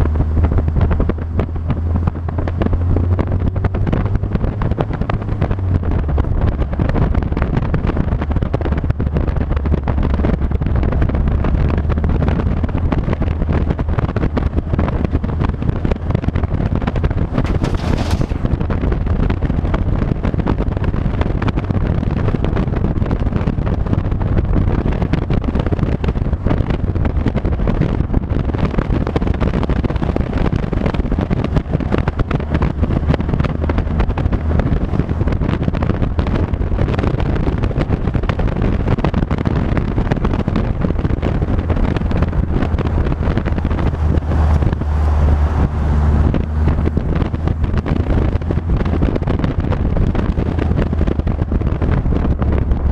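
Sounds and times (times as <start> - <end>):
wind rushing over microphone: 0.0 - 52.9
low engine drone: 23.1 - 52.9.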